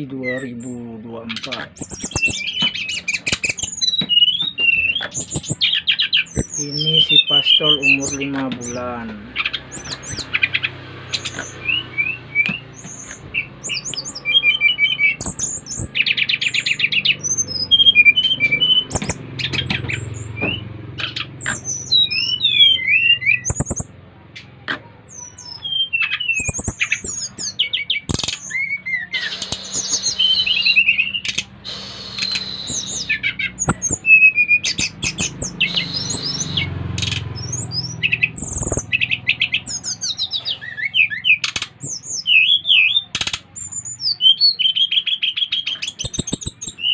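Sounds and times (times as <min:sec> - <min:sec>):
birds singing with trills: 0:00.0 - 0:46.9
sharp taps: 0:12.4 - 0:14.2, 0:18.8 - 0:21.9, 0:32.3 - 0:34.1, 0:34.7 - 0:36.3.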